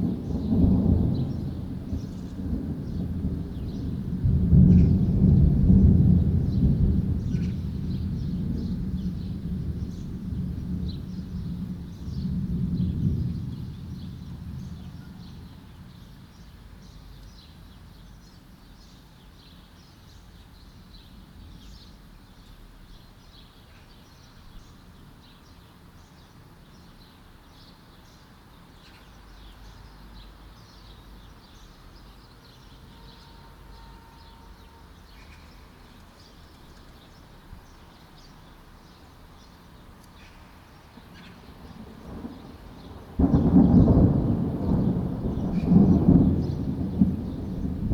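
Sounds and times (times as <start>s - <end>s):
thunder rumble: 0.0s - 16.8s, 40.4s - 47.9s
small birds chirping: 10.9s - 47.8s.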